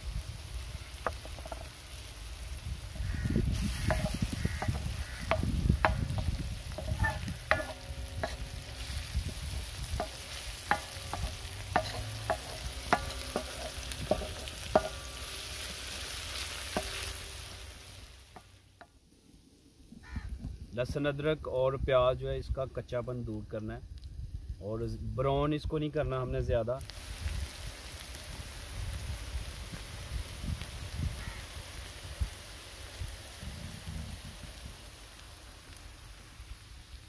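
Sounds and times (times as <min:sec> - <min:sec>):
onion sizzling in oil: 0:00.0 - 0:37.0
spatula scraping and tapping pan: 0:00.9 - 0:01.8, 0:03.0 - 0:18.9.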